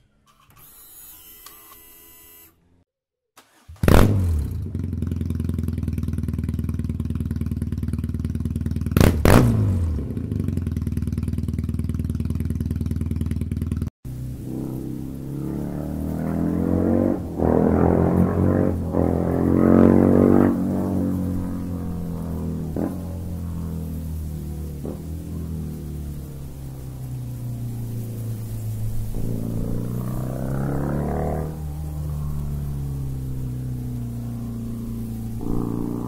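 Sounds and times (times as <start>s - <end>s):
motorcycle engine starting and idling: 3.4s - 36.0s
droning sound with rising pitch: 14.1s - 36.0s.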